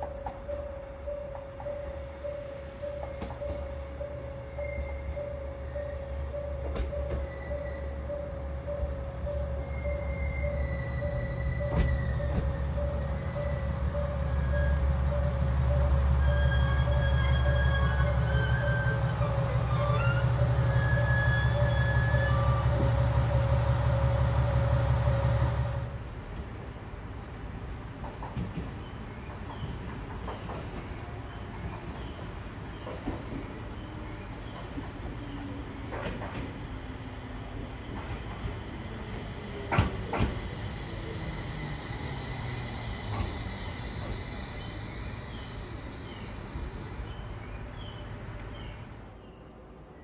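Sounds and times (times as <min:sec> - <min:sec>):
train rumbling on rails: 0:00.0 - 0:50.0
high-pitched wheel squeal: 0:09.7 - 0:22.9.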